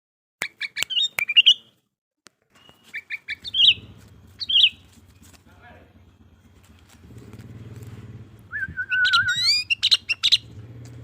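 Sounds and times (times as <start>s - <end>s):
bird calling: 0.4s - 1.8s, 2.5s - 10.7s
steady engine hum: 2.6s - 11.0s.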